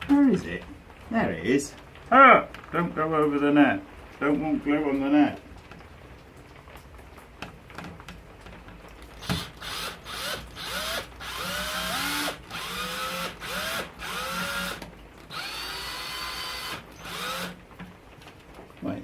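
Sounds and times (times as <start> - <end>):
power drill driving screw into wood: 9.2 - 17.6.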